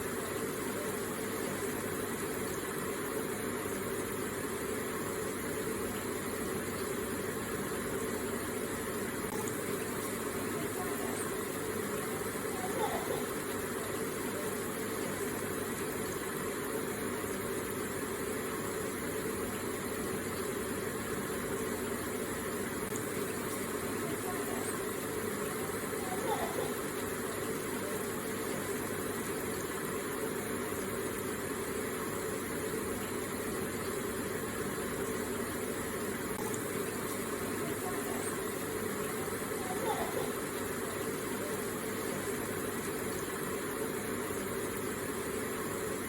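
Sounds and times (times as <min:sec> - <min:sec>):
water feature rushing: 0:00.0 - 0:46.0.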